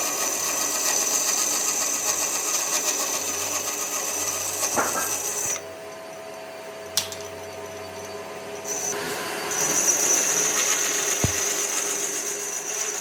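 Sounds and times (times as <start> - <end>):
sharp click: 7.0 - 7.3
power tool whining: 7.8 - 13.0.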